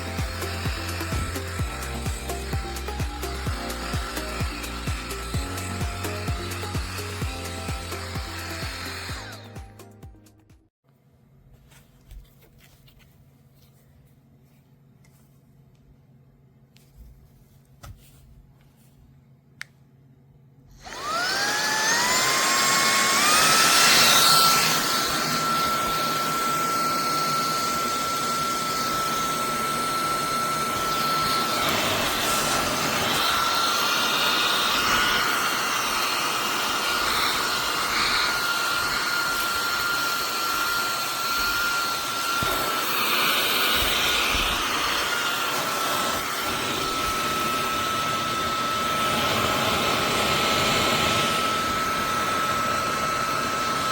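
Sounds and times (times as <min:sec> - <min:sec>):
handheld vacuum motor whine: 0:00.0 - 0:10.0, 0:20.7 - 0:53.9.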